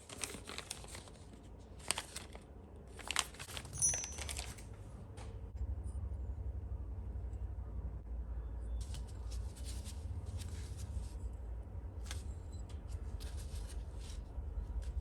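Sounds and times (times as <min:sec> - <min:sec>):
small parts clicking and rustling: 0:03.0 - 0:04.7
steady low rumble: 0:04.2 - 0:15.0.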